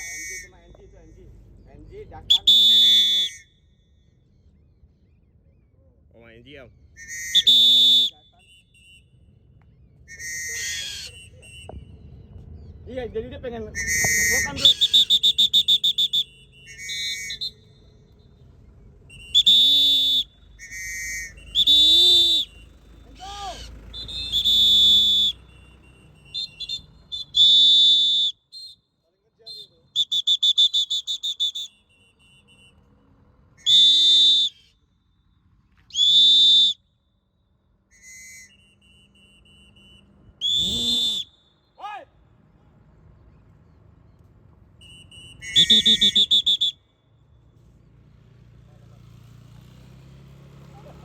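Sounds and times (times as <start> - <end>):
shrill whistle blasts: 0.0 - 1.1, 1.8 - 4.6, 6.9 - 12.3, 13.7 - 32.9, 33.5 - 37.1, 37.8 - 42.0, 44.7 - 47.4.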